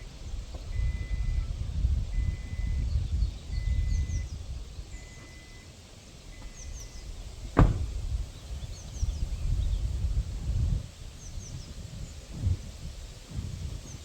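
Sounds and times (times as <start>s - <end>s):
wind gusting on microphone: 0.0s - 5.5s, 6.2s - 14.0s
small birds chirping: 0.0s - 12.8s
sharp thump: 7.5s - 8.0s.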